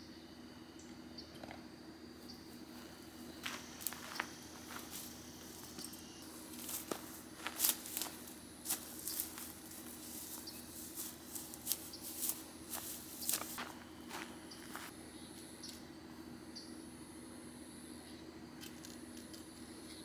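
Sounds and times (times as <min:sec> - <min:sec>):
faint steady hum: 0:00.0 - 0:20.0
rustling of camping gear: 0:02.4 - 0:15.0.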